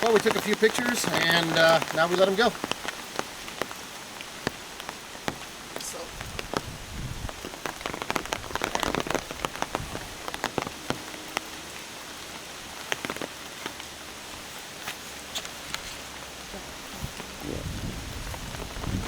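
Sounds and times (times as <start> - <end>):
rain with raindrop ticks: 0.0 - 19.0.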